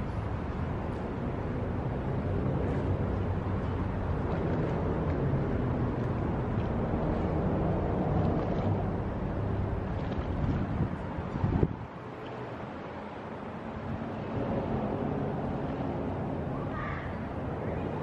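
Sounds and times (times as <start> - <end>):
outdoor air noise: 0.0 - 18.0.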